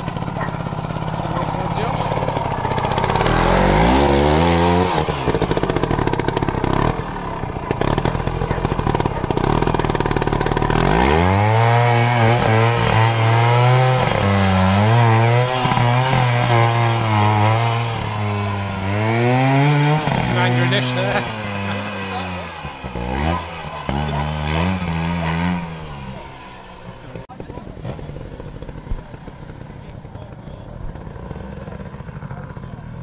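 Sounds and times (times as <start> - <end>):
motorcycle engine revving hard: 0.0 - 33.0.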